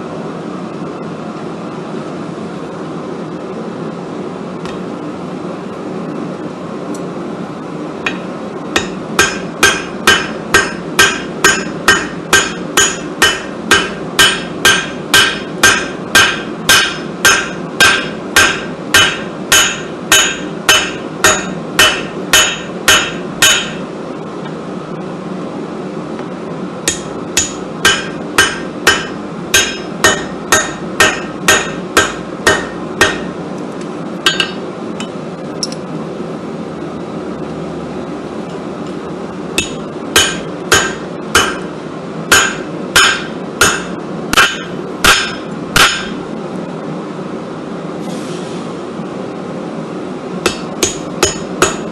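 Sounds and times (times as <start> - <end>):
steady low hum: 0.0 - 51.9
hammer ringing on anvil: 8.8 - 23.8, 26.9 - 33.4, 34.3 - 35.2, 39.6 - 41.7, 42.3 - 46.2, 50.4 - 51.9.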